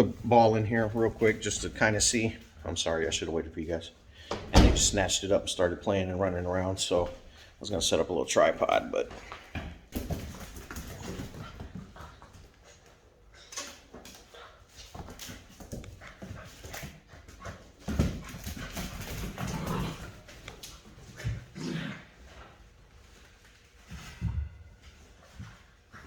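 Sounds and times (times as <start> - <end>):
puppy paws scrabbling: 6.8 - 21.6.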